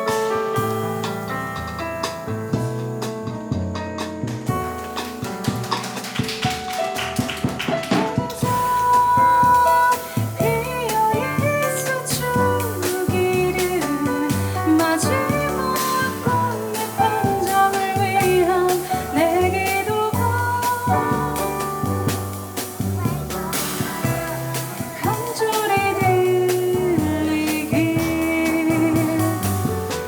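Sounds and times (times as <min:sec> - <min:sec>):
cymbal and drum strikes: 0:00.0 - 0:30.0
jazz band playing: 0:00.0 - 0:30.0
walking bass line: 0:08.4 - 0:30.0.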